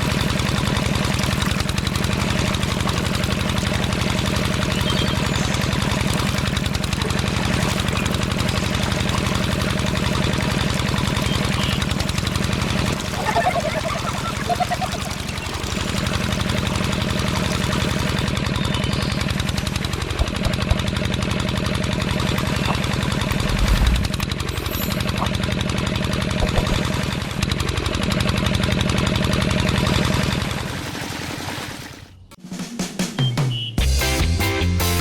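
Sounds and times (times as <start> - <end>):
small pump engine knocking: 0.0 - 31.1
music: 32.4 - 35.0.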